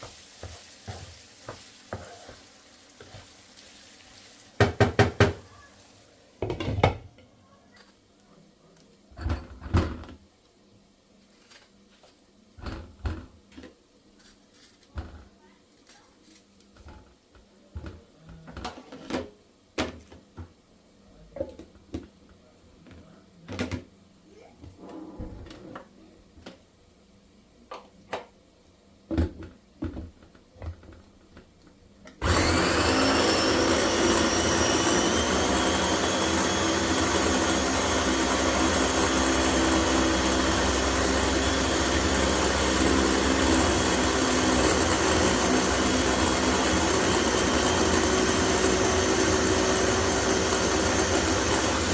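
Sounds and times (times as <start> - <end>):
electric blender running: 32.2 - 51.9.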